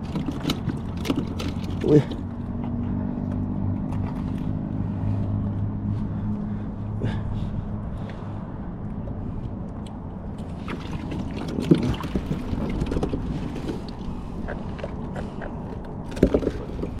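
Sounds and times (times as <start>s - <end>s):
water noise: 0.0s - 2.4s, 3.6s - 5.1s, 9.2s - 17.0s
wind: 0.0s - 17.0s.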